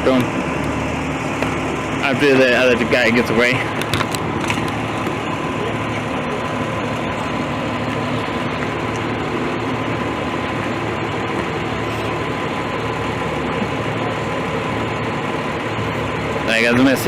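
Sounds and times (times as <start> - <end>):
diesel engine idling: 0.0 - 17.0
thin steady whine: 0.0 - 17.0.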